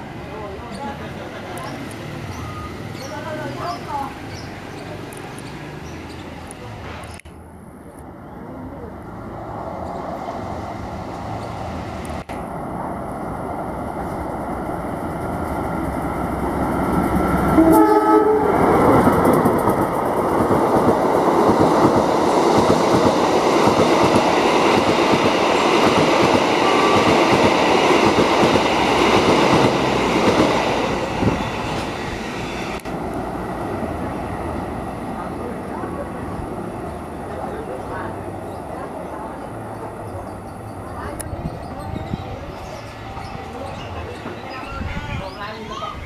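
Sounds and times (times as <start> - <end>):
diesel train approaching: 0.0 - 46.0
train horn blast: 17.5 - 18.7.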